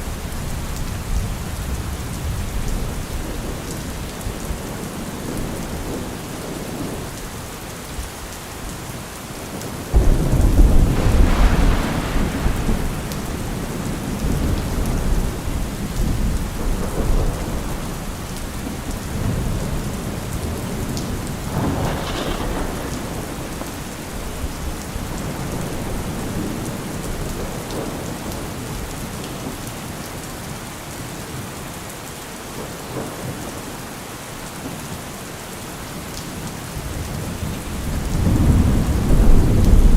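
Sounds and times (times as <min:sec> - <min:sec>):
steady rain: 0:00.0 - 0:39.9
thunder: 0:09.9 - 0:28.9, 0:36.9 - 0:39.9.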